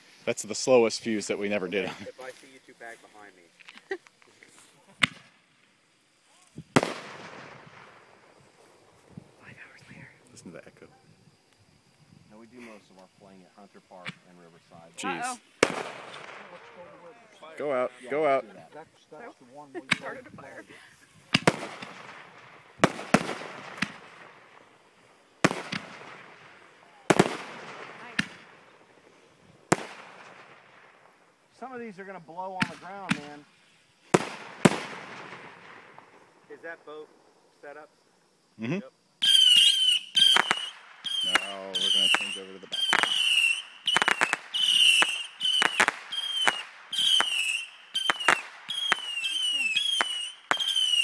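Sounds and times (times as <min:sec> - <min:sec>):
fireworks bangs with crackling: 0:05.0 - 0:05.5, 0:06.6 - 0:10.9, 0:11.9 - 0:18.4, 0:19.5 - 0:37.1, 0:39.2 - 0:51.0.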